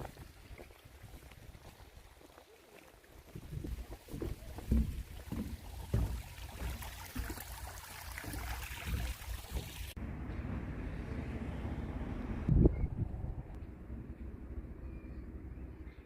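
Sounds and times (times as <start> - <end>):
wind buffeting microphone: 12.4 - 13.7.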